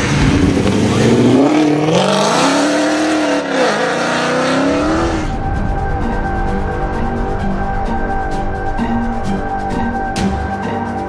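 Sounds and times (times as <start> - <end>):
car engine accelerating hard: 0.0 - 5.4
music: 4.0 - 11.0.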